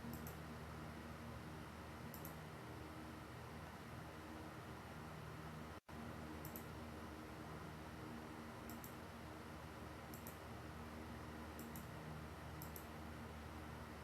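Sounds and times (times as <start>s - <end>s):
sharp high-pitched clicks: 0.0s - 0.4s, 2.1s - 2.4s, 6.4s - 6.7s, 8.7s - 9.0s, 10.1s - 10.4s, 11.6s - 11.9s, 12.6s - 12.9s
low hum and hiss: 0.0s - 14.0s.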